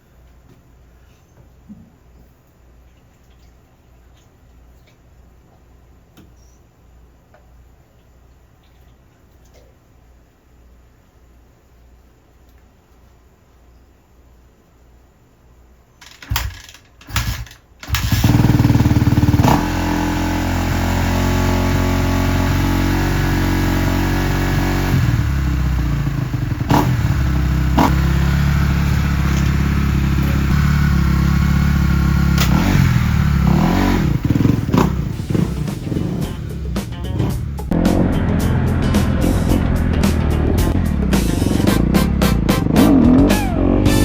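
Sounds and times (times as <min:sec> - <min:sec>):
dirt bike engine starting and running: 0:16.0 - 0:44.0.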